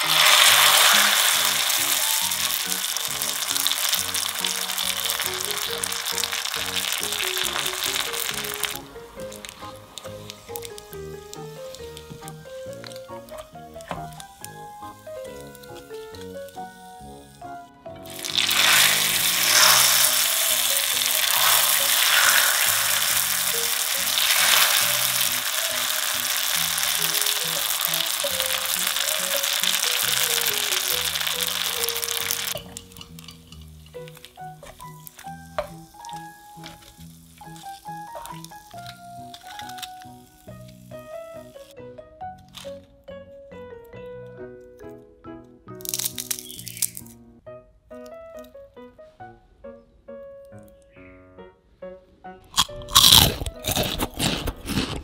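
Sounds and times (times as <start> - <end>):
food deep-frying in oil: 0.0 - 17.2, 18.0 - 41.7, 45.8 - 47.1
background music: 0.0 - 55.0.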